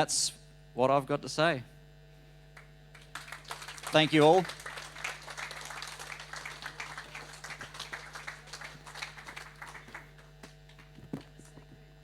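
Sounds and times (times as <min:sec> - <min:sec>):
congregation applauding: 0:02.6 - 0:11.6.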